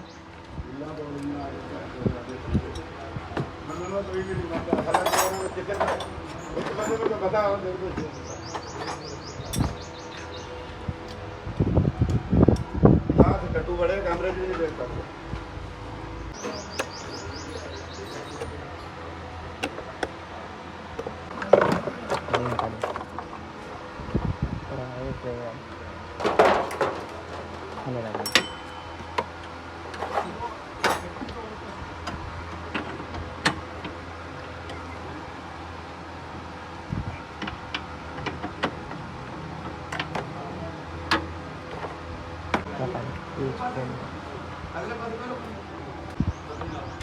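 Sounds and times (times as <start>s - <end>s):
small bird chirping: 16.3s - 18.5s.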